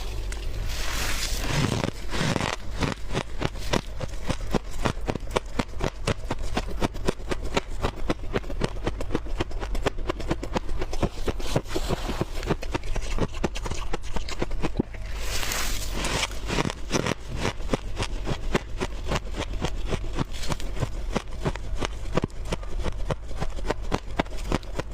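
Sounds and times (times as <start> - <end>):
squeaky frost crunching: 0.0 - 6.6, 10.4 - 17.6.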